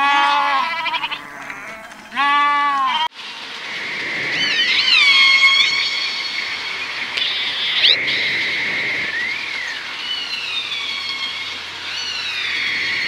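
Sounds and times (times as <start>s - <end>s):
farm animal bleating: 0.0s - 3.1s
steady high drone: 3.2s - 13.0s
high whistled calls: 3.6s - 13.0s.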